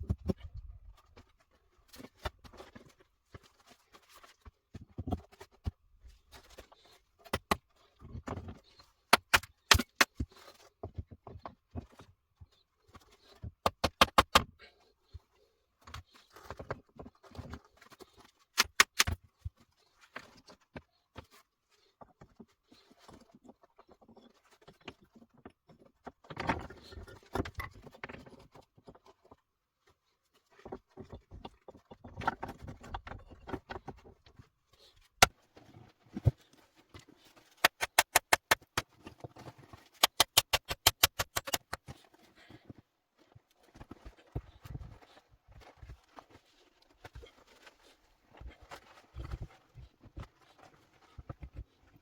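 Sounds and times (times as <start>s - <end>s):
rapid sharp ticks: 18.6s - 19.1s, 37.6s - 38.8s, 40.0s - 41.8s
objects knocking and rustling: 37.4s - 42.8s.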